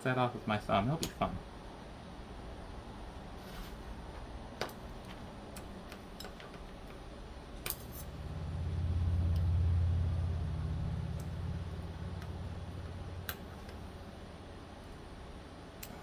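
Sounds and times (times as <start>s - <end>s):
low hum: 7.2s - 16.0s.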